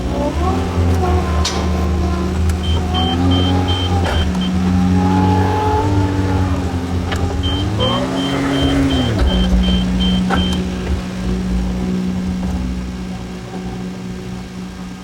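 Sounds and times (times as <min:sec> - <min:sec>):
hydraulic whine: 0:00.0 - 0:14.0
diesel engine running: 0:00.0 - 0:15.0
metal clanks: 0:00.9 - 0:04.6
faint rapid beeping: 0:01.2 - 0:04.6, 0:07.4 - 0:10.6.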